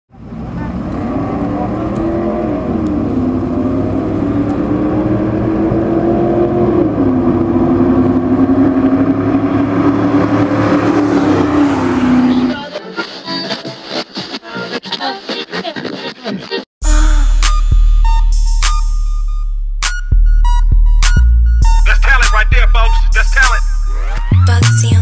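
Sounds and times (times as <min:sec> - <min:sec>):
truck engine revving high: 0:00.1 - 0:12.6, 0:20.4 - 0:25.0.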